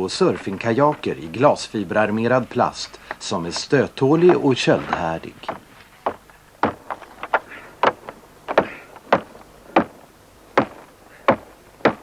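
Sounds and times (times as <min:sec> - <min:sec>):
sharp knocks: 0:03.0 - 0:10.0, 0:10.6 - 0:12.0.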